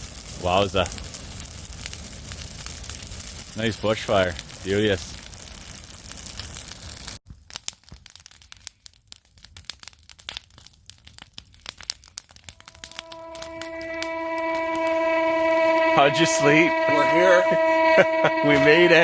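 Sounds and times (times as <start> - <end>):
sharp crackles and rustles: 0.0 - 13.7
fire crackling and hissing: 0.0 - 19.0.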